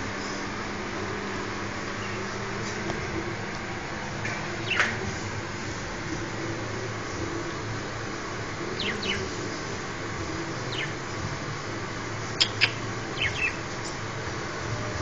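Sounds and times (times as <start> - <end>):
budgerigars chirping: 4.6 - 4.9, 8.8 - 9.3, 10.7 - 11.1, 12.3 - 14.0.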